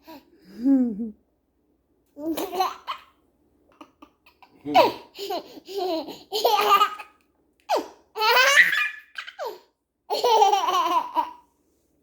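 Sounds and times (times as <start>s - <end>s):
baby laughing: 2.2s - 3.1s, 3.8s - 11.4s.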